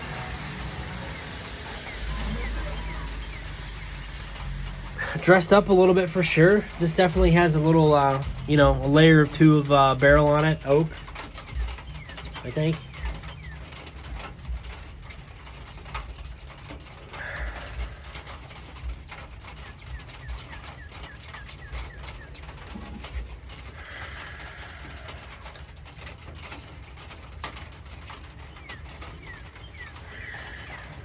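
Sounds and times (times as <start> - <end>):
birds chirping: 0.0 - 31.0
steady low hum: 0.0 - 31.0
faint ticks: 10.2 - 31.0.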